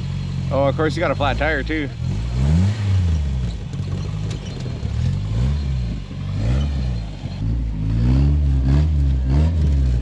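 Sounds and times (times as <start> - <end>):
engine revving: 0.0 - 10.0.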